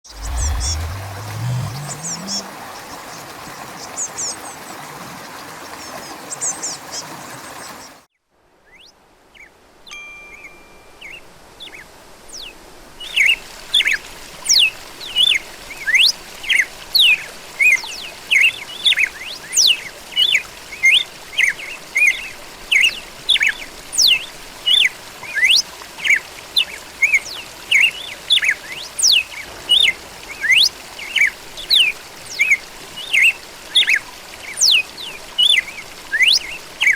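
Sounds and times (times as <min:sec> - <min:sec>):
bird chirps: 0:00.1 - 0:02.8
soft wash of noise: 0:00.1 - 0:03.3.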